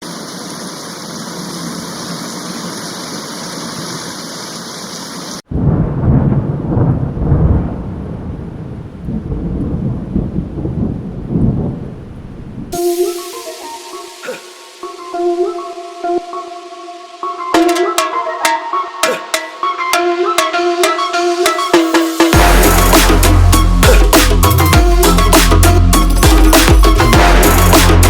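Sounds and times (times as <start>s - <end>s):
rain falling: 0.0s - 12.8s
low rumble of thunder: 5.5s - 12.8s.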